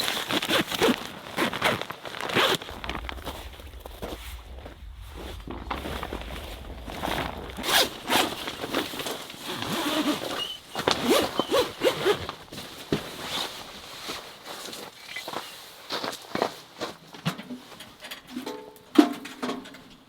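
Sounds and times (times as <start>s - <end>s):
zipper being pulled: 0.2s - 3.9s, 7.0s - 12.4s.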